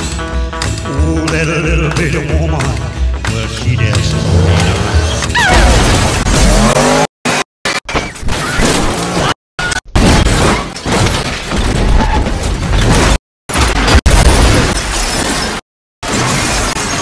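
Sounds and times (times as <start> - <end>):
rock music: 0.0 - 5.5.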